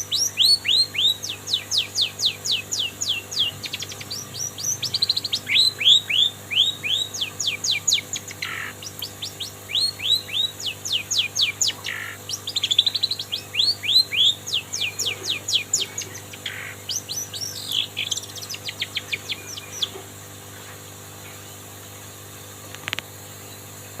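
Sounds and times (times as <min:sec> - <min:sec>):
shrike singing mimicked song: 0:00.0 - 0:20.2
faint click: 0:22.7 - 0:23.1.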